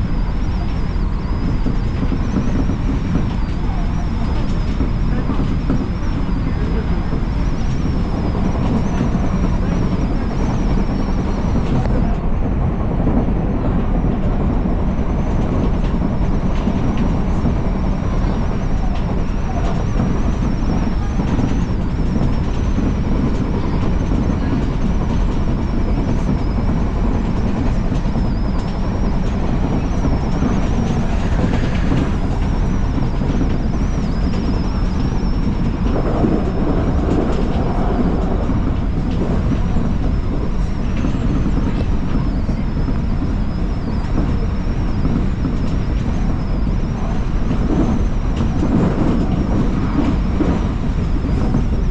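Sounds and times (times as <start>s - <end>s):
train wheels rumbling on rail: 0.0s - 51.9s.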